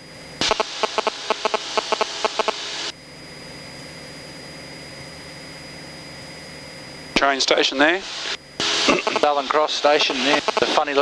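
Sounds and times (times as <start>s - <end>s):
muffled aircraft engine drone: 0.0s - 11.0s
intercom hiss: 0.4s - 2.9s, 7.2s - 11.0s.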